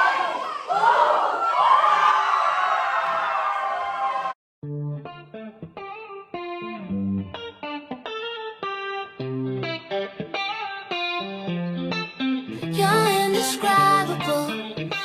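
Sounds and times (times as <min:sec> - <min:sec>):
electric guitar picking a melody: 0:04.6 - 0:15.0.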